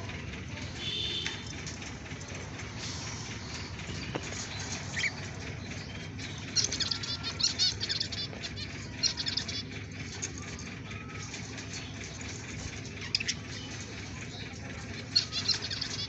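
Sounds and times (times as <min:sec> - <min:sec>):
budgerigars chirping: 0:03.6 - 0:10.3, 0:12.9 - 0:16.0.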